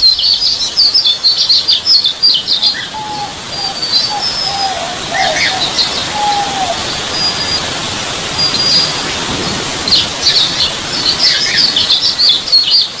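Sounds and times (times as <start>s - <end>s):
high bird chirps: 0.0s - 9.2s
steady background hiss: 0.0s - 13.0s.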